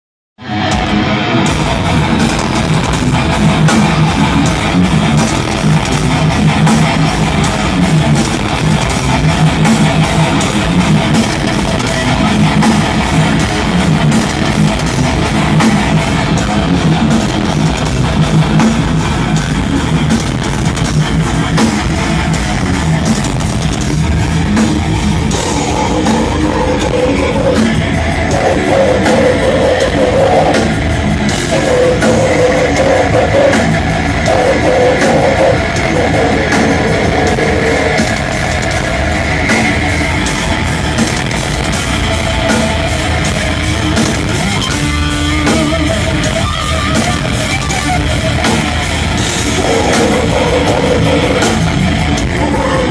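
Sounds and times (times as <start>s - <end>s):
distorted electric guitars: 0.4s - 52.9s
drum kit: 0.4s - 52.9s.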